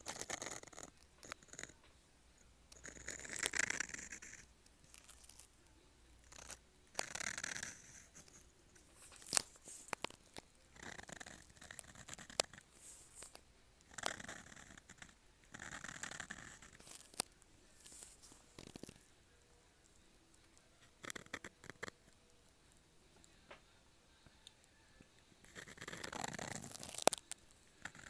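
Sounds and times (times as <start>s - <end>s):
sharp ticks of pen: 0.0s - 1.7s, 2.8s - 4.4s, 6.3s - 8.4s, 13.9s - 17.2s
pen nib scratching paper: 0.0s - 1.8s, 2.7s - 5.5s, 6.2s - 10.2s, 10.8s - 19.0s, 20.8s - 22.0s, 25.4s - 28.0s.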